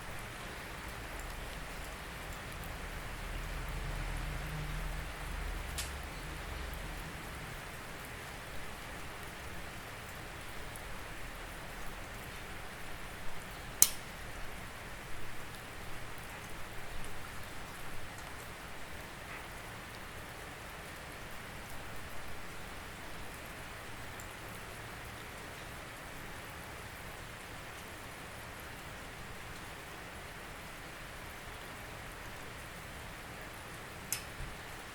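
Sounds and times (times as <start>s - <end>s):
raindrops hitting a surface: 0.0s - 34.9s
steady rain falling: 0.0s - 34.9s.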